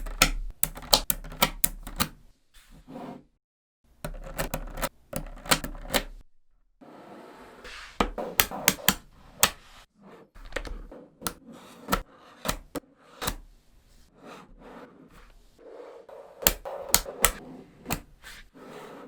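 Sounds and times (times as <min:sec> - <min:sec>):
magnetic balls snapping together: 0:00.0 - 0:02.2, 0:08.2 - 0:09.7, 0:16.4 - 0:18.1
balls rubbing and rolling: 0:02.2 - 0:03.4, 0:06.8 - 0:19.0.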